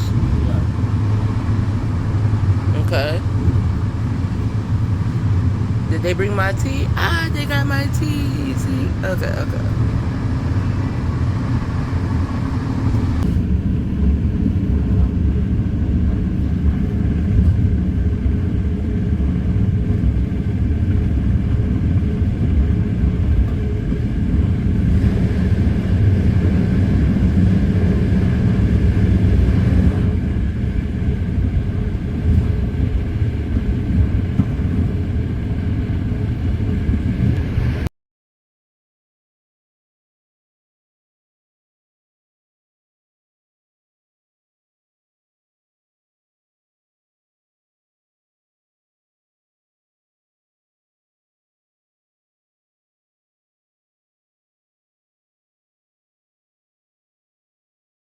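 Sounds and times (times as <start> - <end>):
train rumbling inside cabin: 0.0 - 37.9.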